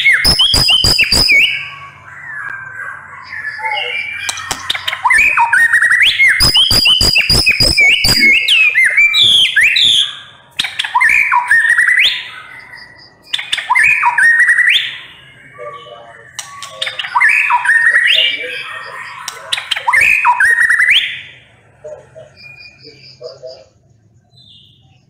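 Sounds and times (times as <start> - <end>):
bird sharp clicking notes: 0.0 - 1.6, 4.2 - 8.7, 16.3 - 17.6, 19.2 - 20.1
bird singing whistles: 0.0 - 21.3.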